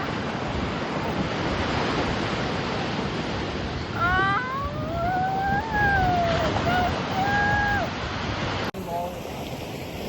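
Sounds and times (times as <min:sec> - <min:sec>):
ocean surf washing: 0:00.0 - 0:10.0
wind buffeting microphone: 0:00.0 - 0:10.0.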